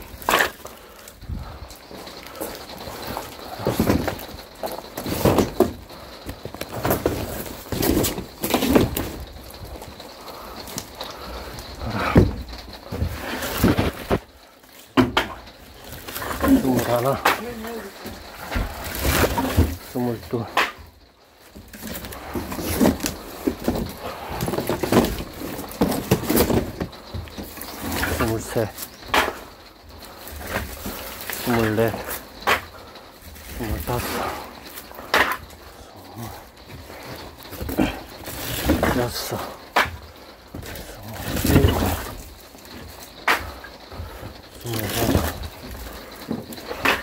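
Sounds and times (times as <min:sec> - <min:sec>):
firewood knocks and thumps: 0:00.0 - 0:47.0
rustling: 0:00.0 - 0:47.0.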